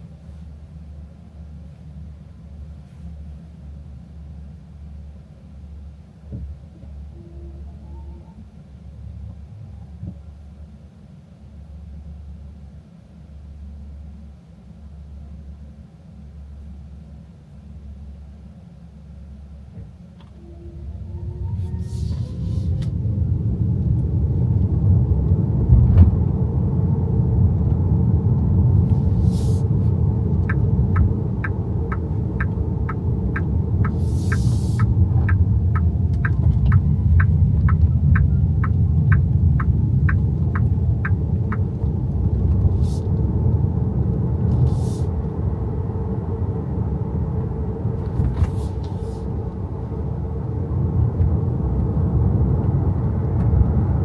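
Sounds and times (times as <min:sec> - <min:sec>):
road and tyre rumble: 0:16.4 - 0:54.0
turn signal ticking: 0:27.7 - 0:43.4.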